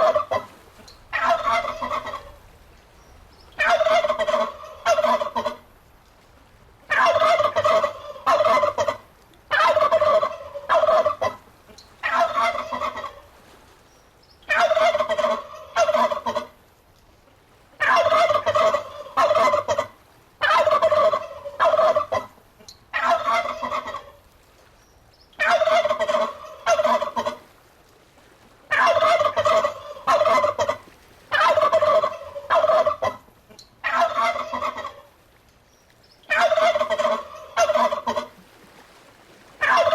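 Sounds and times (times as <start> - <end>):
turkey gobbling: 0.0 - 0.5, 1.1 - 2.4, 3.6 - 5.6, 6.9 - 11.4, 12.0 - 13.2, 14.5 - 16.5, 17.8 - 24.2, 25.4 - 27.4, 28.7 - 35.1, 36.3 - 38.4, 39.6 - 39.9.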